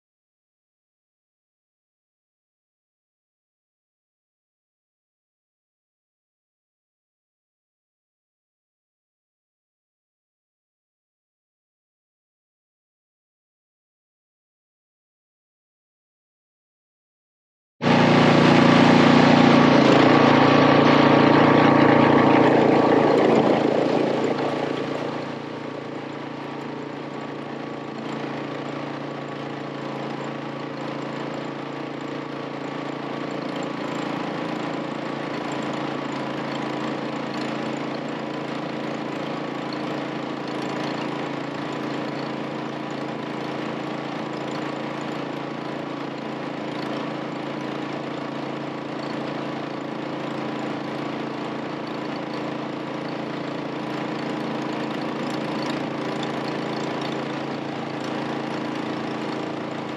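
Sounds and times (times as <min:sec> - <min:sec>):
vehicle engine running: 0:17.8 - 0:59.9.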